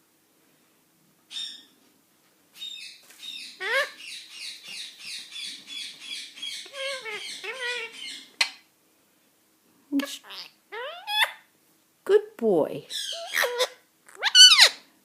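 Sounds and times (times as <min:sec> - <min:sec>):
parrot chattering and chirping: 0:01.3 - 0:01.7, 0:02.6 - 0:08.7, 0:10.0 - 0:11.5, 0:12.9 - 0:14.8.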